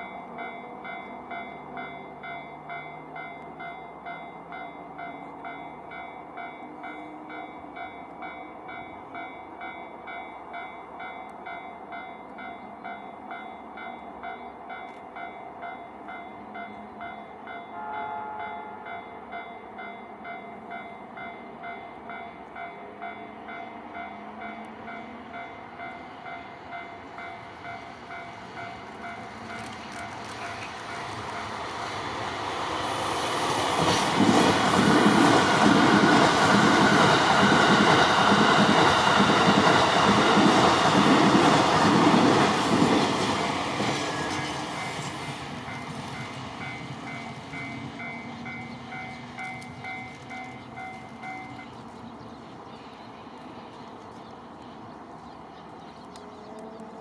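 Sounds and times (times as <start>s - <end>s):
train rumble: 0.0s - 57.0s
wheels clattering on rails: 19.5s - 52.8s.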